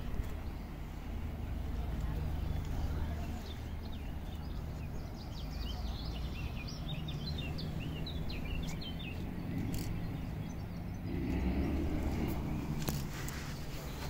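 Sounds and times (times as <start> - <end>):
songbird chirping: 0.0 - 14.0
steady low rumble: 6.6 - 14.0.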